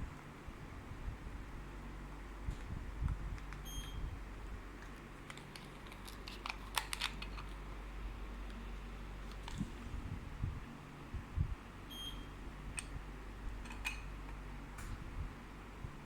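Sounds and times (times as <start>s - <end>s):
air conditioner hum: 0.0s - 16.0s
air conditioner beep: 3.6s - 4.3s, 11.4s - 14.8s.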